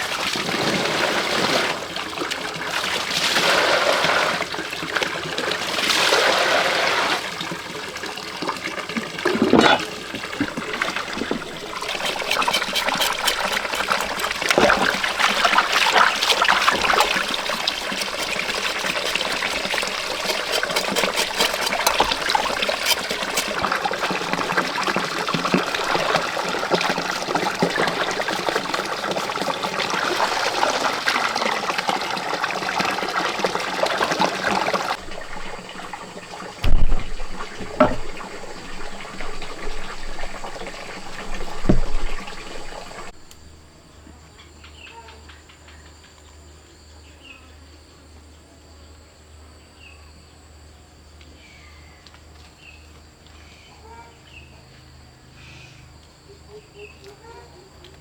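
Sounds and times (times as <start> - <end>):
water running and splashing: 0.0 - 43.5
small clatters: 9.3 - 24.6.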